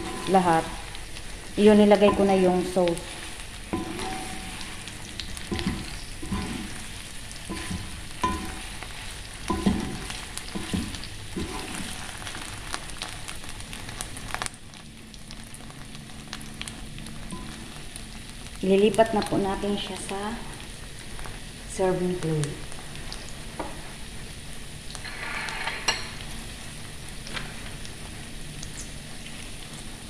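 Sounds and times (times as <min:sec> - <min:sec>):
chicken sizzling in sauce: 0:00.0 - 0:30.0
wooden spatula scraping pan: 0:05.5 - 0:06.9, 0:07.5 - 0:12.4.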